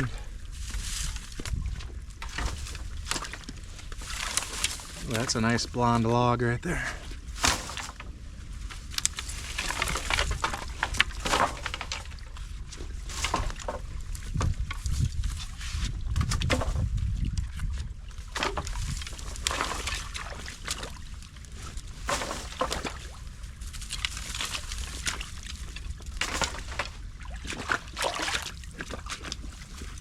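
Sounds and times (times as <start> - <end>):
sticks and rocks knocking: 0.0 - 6.0, 6.7 - 30.0
water splashing: 24.1 - 29.9.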